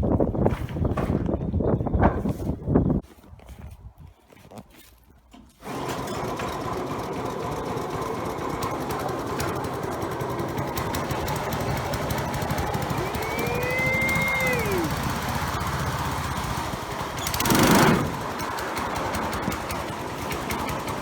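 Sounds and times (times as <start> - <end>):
small engine chugging: 5.6 - 21.0.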